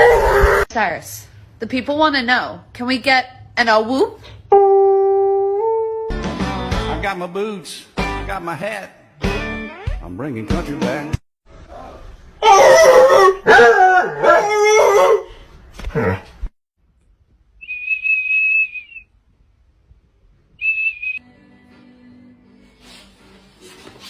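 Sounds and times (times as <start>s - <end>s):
howl-like vocalising: 0.0s - 0.7s, 12.4s - 15.3s
high whistle tones: 17.6s - 19.2s, 20.6s - 21.2s.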